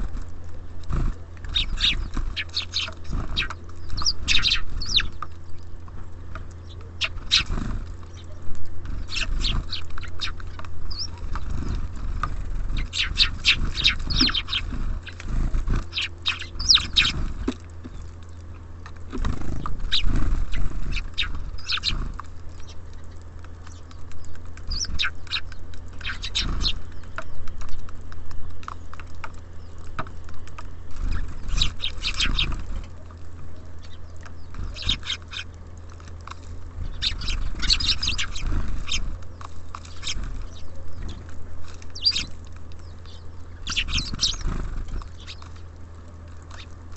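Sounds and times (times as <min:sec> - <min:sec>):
small songbirds chirping: 0:00.0 - 0:46.9
steady low hum: 0:00.0 - 0:46.9.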